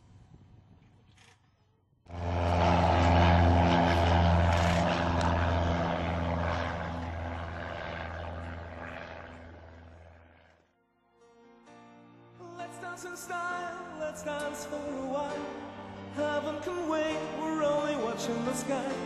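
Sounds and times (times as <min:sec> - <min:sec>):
propeller plane engine running: 0:02.1 - 0:10.7, 0:14.2 - 0:19.0.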